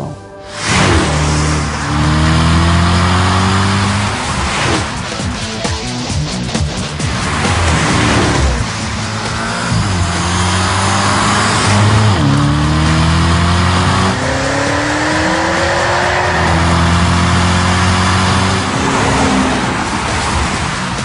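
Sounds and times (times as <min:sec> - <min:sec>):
car engine accelerating: 0:00.5 - 0:21.0.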